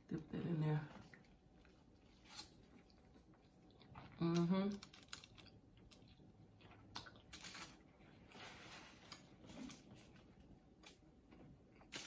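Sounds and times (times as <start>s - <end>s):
soft chewing: 0.1s - 12.0s
soft rustles: 8.2s - 10.3s.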